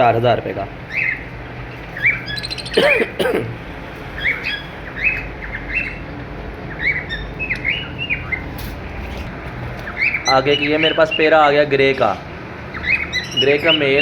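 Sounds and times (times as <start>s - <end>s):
cockatiels chirping: 0.9s - 2.8s, 4.1s - 8.6s, 12.7s - 14.0s.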